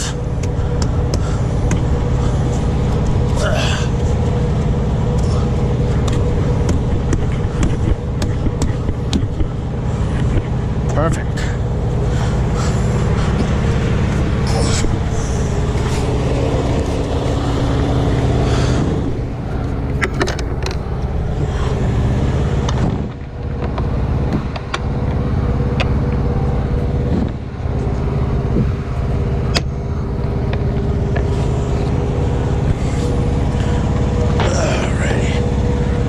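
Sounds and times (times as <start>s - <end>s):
truck engine idling: 0.0s - 36.0s
clicks and knocks of handling: 19.9s - 20.8s.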